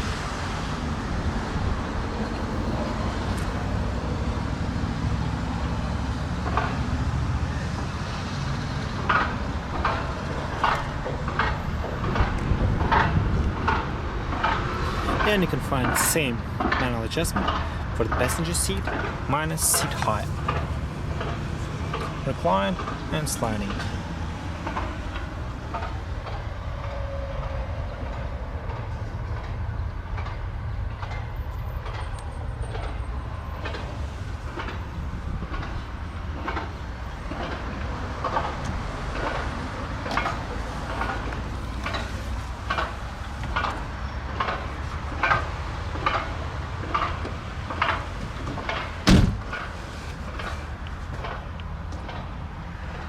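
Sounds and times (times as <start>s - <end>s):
seat adjuster clicks and knocks: 47.8s - 50.2s
loud thump: 49.0s - 49.7s.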